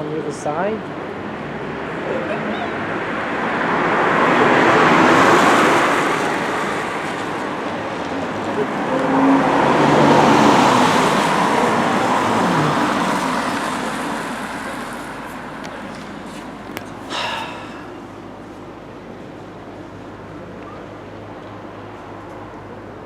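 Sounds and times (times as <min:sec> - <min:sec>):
vehicle passing by: 0:01.2 - 0:17.0.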